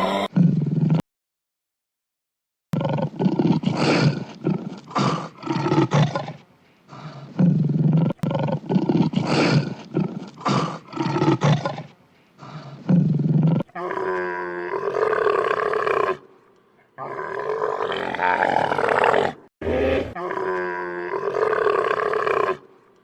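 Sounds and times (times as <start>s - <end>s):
big cat roaring: 17.0s - 22.7s.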